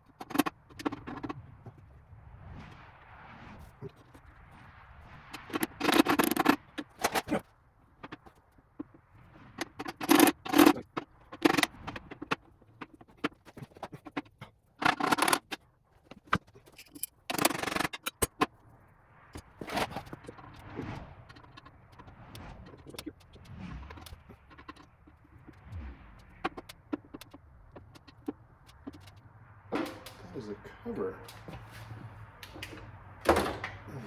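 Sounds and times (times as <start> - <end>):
metal parts scraping and clattering: 5.4 - 18.6.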